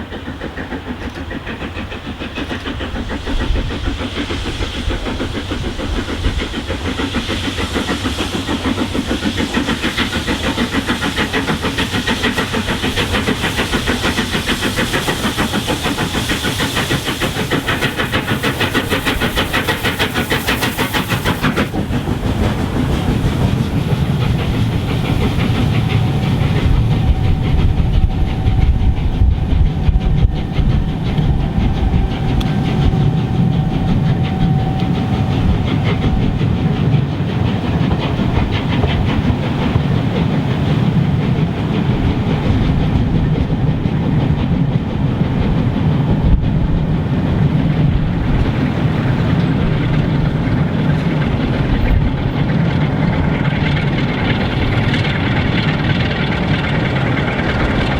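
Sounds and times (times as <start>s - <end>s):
steam train wheels clattering: 0.0s - 57.9s
heavy low rumble: 21.0s - 40.1s.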